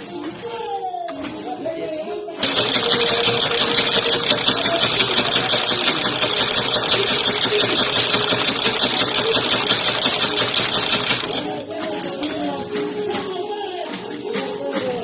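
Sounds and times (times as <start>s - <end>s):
sewing machine clattering: 2.4s - 15.0s.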